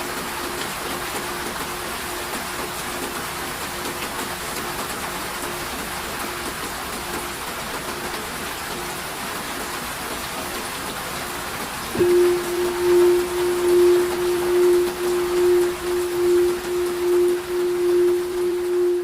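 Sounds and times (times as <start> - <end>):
rain hissing: 0.0 - 19.0
singing bowl ringing: 12.0 - 19.0.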